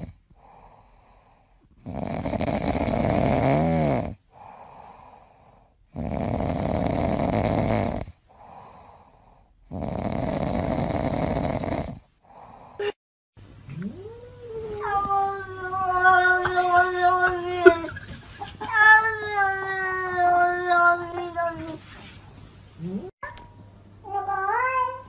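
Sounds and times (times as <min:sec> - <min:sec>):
cat breathing: 0:00.4 - 0:01.7, 0:04.3 - 0:05.8, 0:08.3 - 0:09.6
cat snoring: 0:01.8 - 0:05.2, 0:05.9 - 0:08.9, 0:09.6 - 0:12.5.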